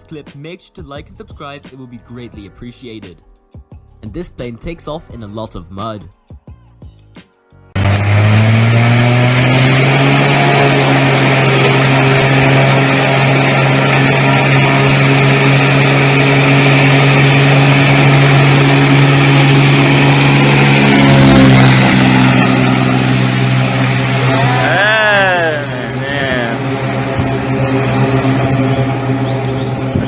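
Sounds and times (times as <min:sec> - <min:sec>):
propeller plane engine at full power: 0:07.8 - 0:30.0.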